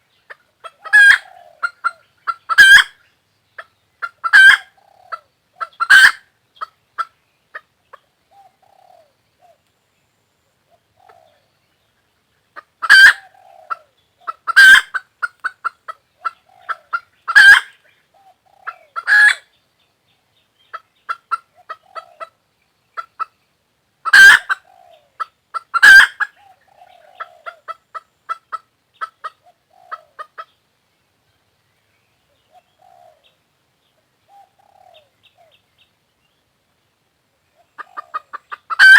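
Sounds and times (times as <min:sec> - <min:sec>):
hen clucking: 0:00.3 - 0:03.0, 0:03.6 - 0:09.1, 0:12.5 - 0:19.4, 0:20.7 - 0:22.4, 0:23.0 - 0:23.4, 0:24.0 - 0:30.6, 0:37.6 - 0:38.9.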